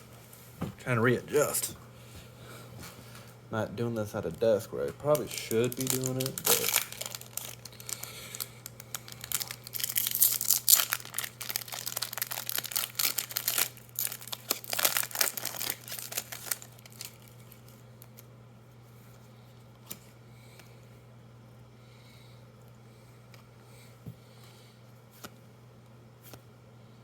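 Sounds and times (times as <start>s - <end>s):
faint steady hum: 0.0s - 27.0s
plastic wrapper crinkling: 4.2s - 18.3s.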